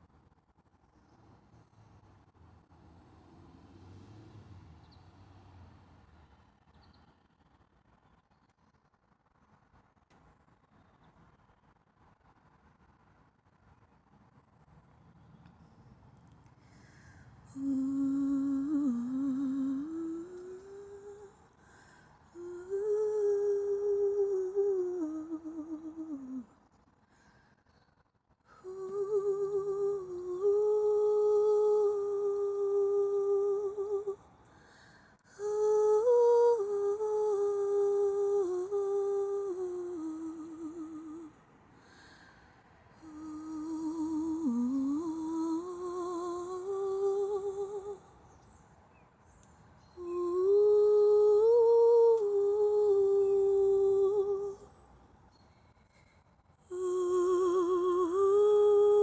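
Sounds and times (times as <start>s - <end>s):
woman humming: 17.5s - 21.5s, 22.3s - 26.6s, 28.5s - 34.2s, 35.3s - 41.4s, 43.0s - 48.1s, 50.0s - 54.8s, 56.7s - 59.0s.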